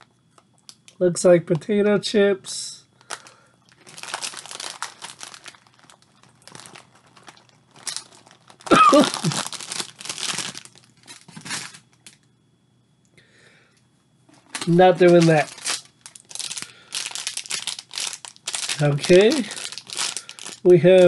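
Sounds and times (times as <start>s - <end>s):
snack bag crinkling: 3.0s - 12.2s, 14.4s - 21.0s
potato chip crunching: 3.7s - 11.3s, 14.6s - 21.0s.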